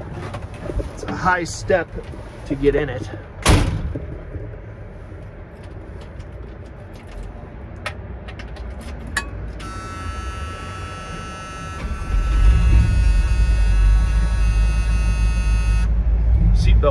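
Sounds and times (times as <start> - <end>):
thump: 3.4 - 4.6
seatbelt warning buzzer: 9.6 - 16.0.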